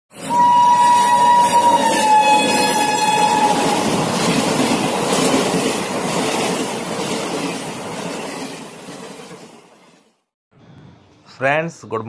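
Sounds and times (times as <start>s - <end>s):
train coaches rushing and clattering: 0.1s - 10.2s
train horn: 0.2s - 4.1s.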